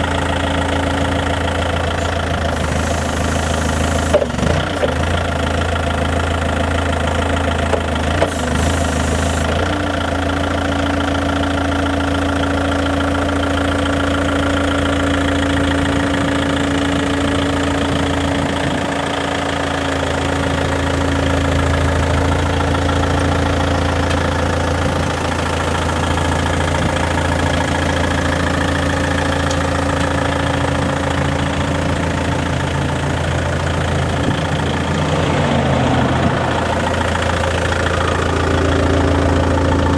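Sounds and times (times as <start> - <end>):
diesel forklift engine idling: 0.0 - 39.9
steady tone: 31.8 - 39.9.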